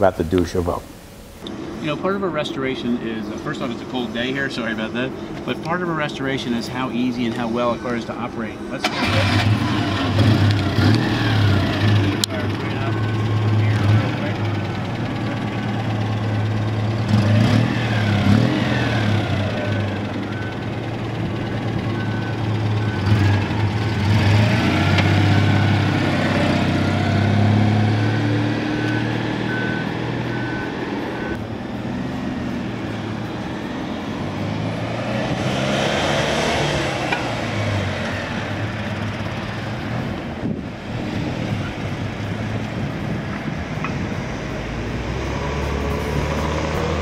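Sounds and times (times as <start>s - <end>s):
car engine driving off: 0.0s - 47.0s
road traffic passing: 0.0s - 47.0s
reversing beeper: 11.1s - 16.7s, 18.5s - 26.6s, 27.2s - 31.4s.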